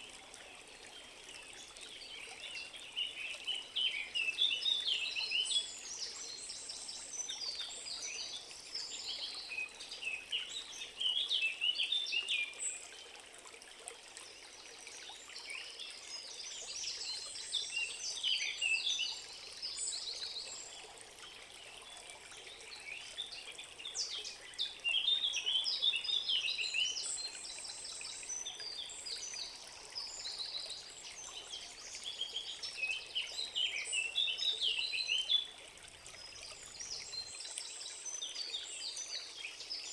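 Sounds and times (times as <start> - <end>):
songbirds singing: 15.2 - 39.9.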